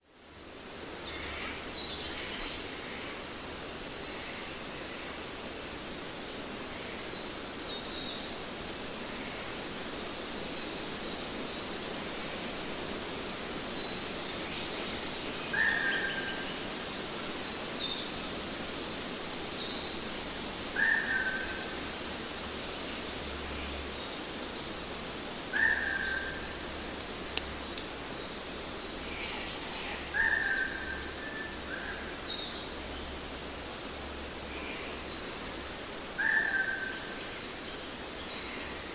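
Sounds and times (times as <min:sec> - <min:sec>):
background hiss: 0:00.0 - 0:38.9.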